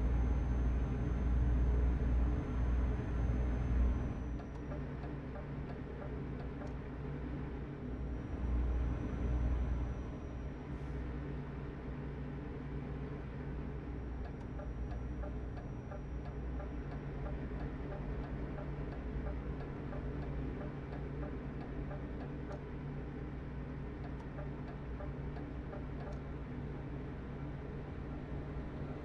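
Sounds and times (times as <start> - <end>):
truck engine droning: 0.0 - 4.4
turn signal ticking: 14.3 - 22.4.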